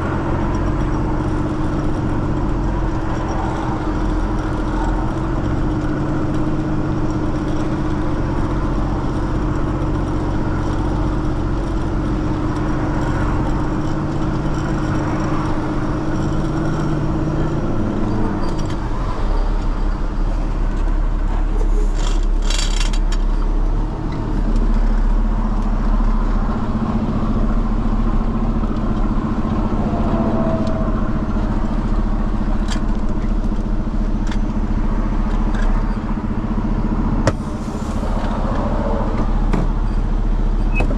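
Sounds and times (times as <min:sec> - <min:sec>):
heavy truck engine running: 0:00.0 - 0:40.9
short rattle: 0:21.6 - 0:23.6.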